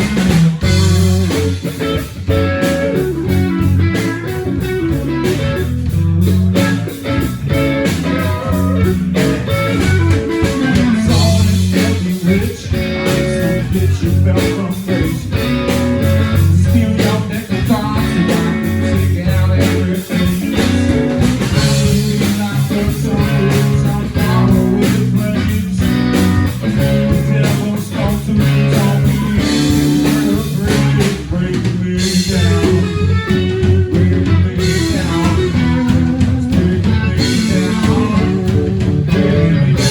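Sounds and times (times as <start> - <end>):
blues rock band playing: 0.0 - 39.9
drum kit: 0.0 - 39.9
electric guitar: 0.0 - 39.9.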